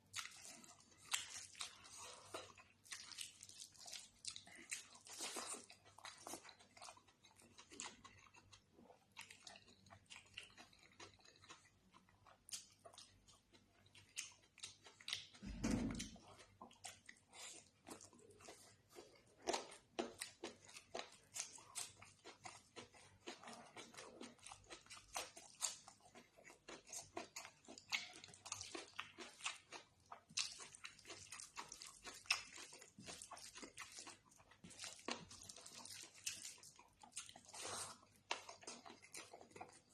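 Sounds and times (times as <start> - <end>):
chewing and mouth clicks: 0.0 - 15.4, 16.0 - 39.9
low thump: 15.4 - 16.2.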